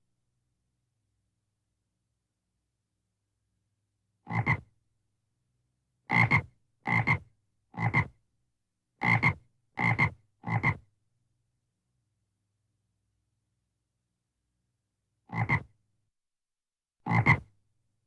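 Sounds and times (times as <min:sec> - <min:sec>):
frog croaking: 0:04.3 - 0:04.6, 0:15.3 - 0:15.7.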